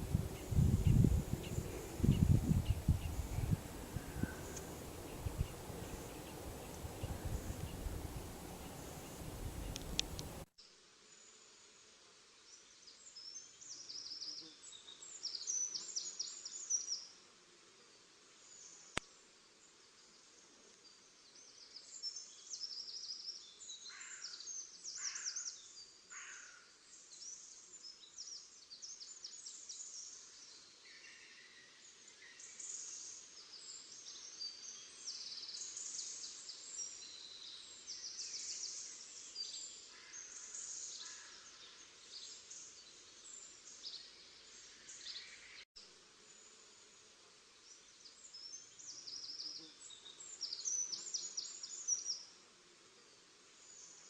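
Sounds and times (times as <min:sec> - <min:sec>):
songbirds chirping: 0:00.0 - 0:10.5.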